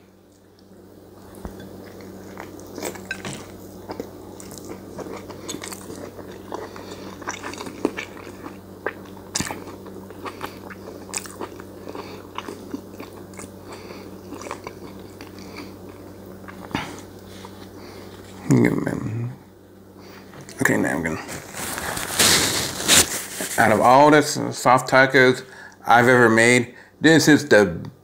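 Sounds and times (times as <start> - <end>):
steady low hum: 0.0 - 28.0
person chewing taco: 0.2 - 18.6, 21.1 - 23.6
wet mouth clicks and crunches: 2.4 - 13.5.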